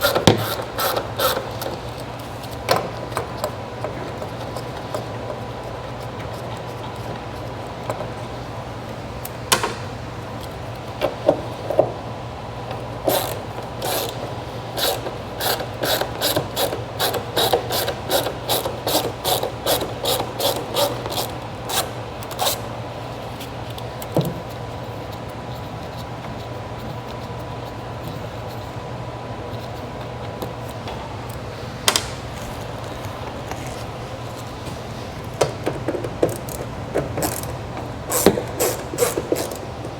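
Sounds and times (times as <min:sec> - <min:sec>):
hand ratchet clicking: 0:00.0 - 0:02.0, 0:14.8 - 0:22.6, 0:36.2 - 0:39.7
steady low hum: 0:00.0 - 0:39.9.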